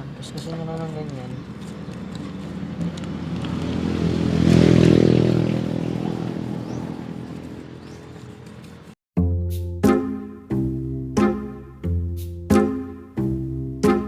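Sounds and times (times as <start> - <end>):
vehicle engine passing by: 1.4 - 9.0
music: 9.2 - 14.0.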